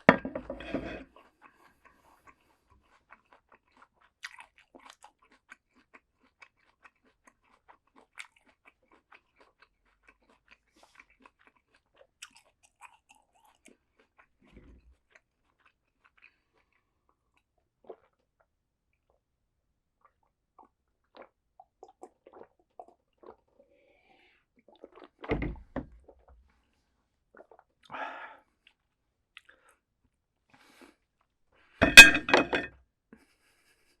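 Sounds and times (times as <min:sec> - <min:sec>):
chewing crunchy raw vegetables: 0:01.0 - 0:19.3, 0:20.0 - 0:23.7, 0:24.6 - 0:25.3.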